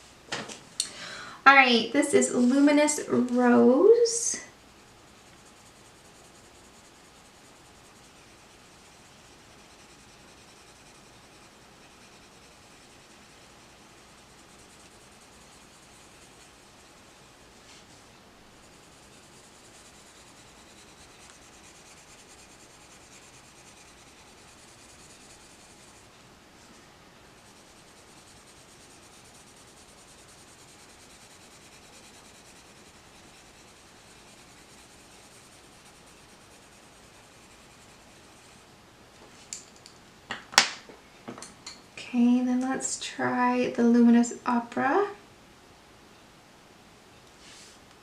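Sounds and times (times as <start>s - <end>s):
pencil scratching on paper: 4.6s - 17.9s, 18.5s - 26.2s, 27.4s - 38.6s.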